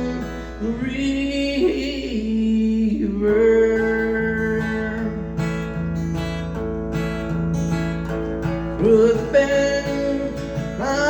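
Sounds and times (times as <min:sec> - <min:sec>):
person singing: 0:00.0 - 0:05.6, 0:08.8 - 0:11.0
acoustic guitar strumming: 0:00.0 - 0:11.0.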